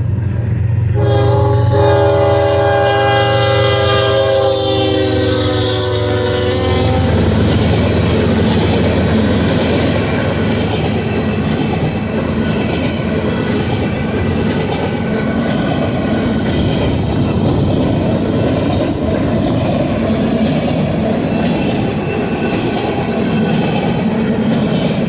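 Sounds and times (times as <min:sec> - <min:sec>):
diesel locomotive rumble: 0:00.0 - 0:25.0
locomotive air horn chord: 0:00.9 - 0:07.6
train wheels clattering on rails: 0:03.2 - 0:25.0.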